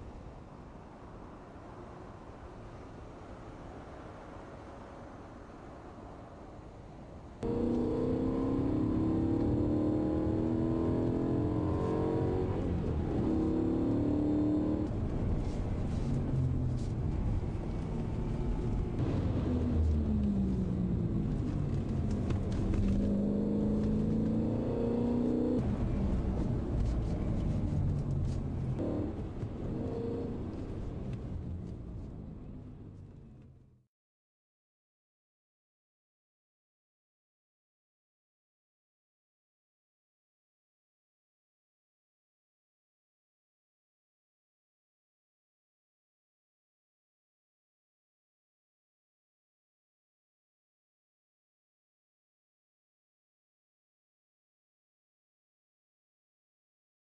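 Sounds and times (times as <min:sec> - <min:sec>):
car engine revving through upshifts: 0:07.4 - 0:16.1, 0:19.0 - 0:31.2.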